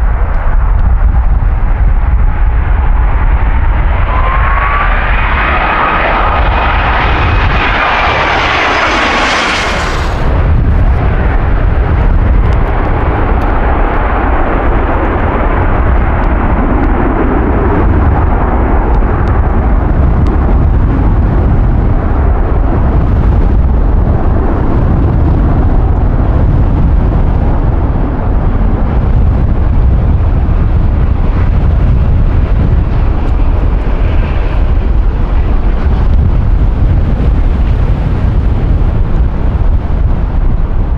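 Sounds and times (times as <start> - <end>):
jet deep rumble: 0.0 - 40.9
jet engine whine: 0.0 - 40.9.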